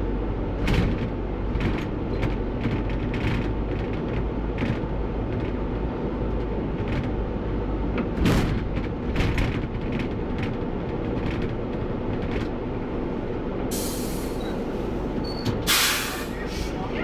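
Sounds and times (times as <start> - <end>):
bus engine and road drone: 0.0 - 17.0
knocks and rattles: 8.0 - 12.6
compressed air hiss: 13.7 - 14.4, 15.7 - 16.8.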